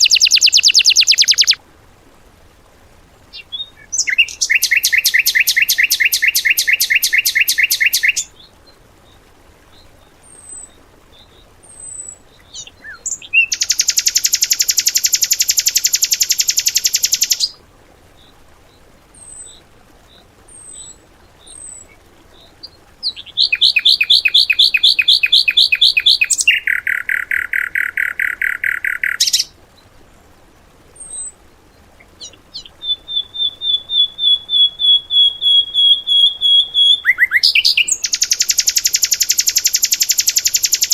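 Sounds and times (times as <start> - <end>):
soft high bird chirps: 0.0 - 1.6, 3.3 - 8.5, 10.3 - 17.6, 20.5 - 29.5, 32.0 - 40.9
songbird fast trills: 0.0 - 1.6, 3.3 - 8.3, 11.8 - 17.6, 23.0 - 29.5, 32.2 - 40.9.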